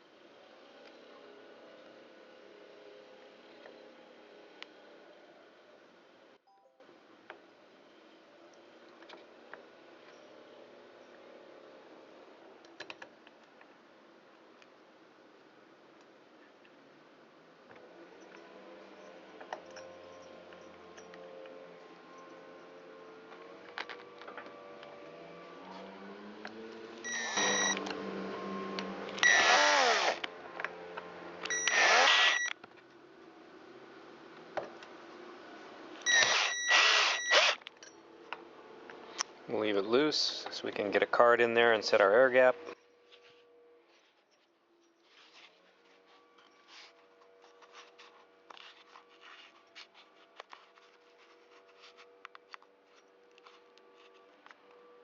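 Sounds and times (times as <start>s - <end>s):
cordless screwdriver whirring: 27.0s - 28.0s, 29.1s - 30.3s, 31.5s - 32.5s, 36.0s - 37.7s
scraping and rustling handling noises: 42.4s - 54.7s.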